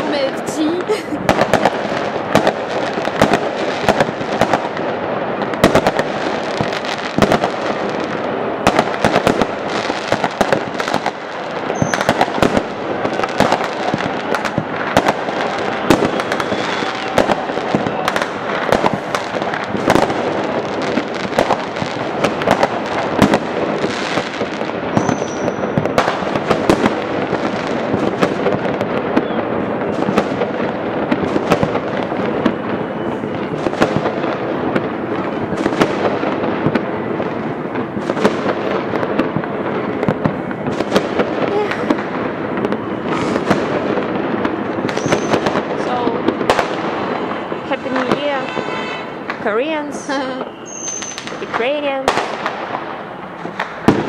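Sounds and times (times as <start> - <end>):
fireworks bangs and crackling: 0.0 - 54.0
firework whistles: 11.6 - 12.6, 13.2 - 20.3, 23.9 - 26.8, 29.1 - 30.2, 32.3 - 34.0, 44.9 - 45.6, 46.6 - 49.3, 50.0 - 51.4.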